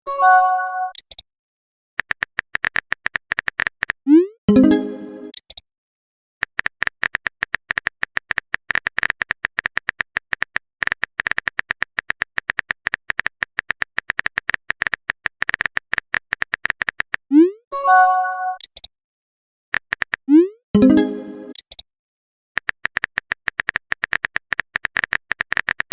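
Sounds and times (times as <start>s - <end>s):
electronic typing clicks with beeps: 0.9s - 1.2s, 18.4s - 18.9s, 19.8s - 21.8s.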